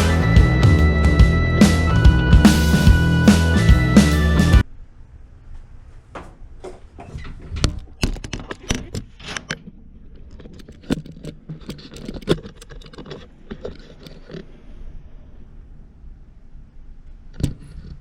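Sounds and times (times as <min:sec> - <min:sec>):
objects being handled: 0:06.2 - 0:14.6.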